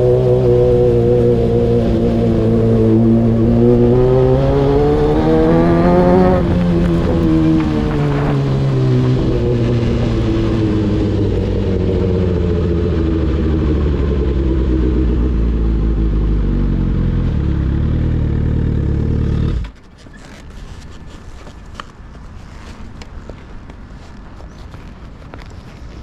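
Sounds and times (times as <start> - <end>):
motorcycle engine running: 0.0 - 19.8
faint clicks and rustling: 19.7 - 26.0.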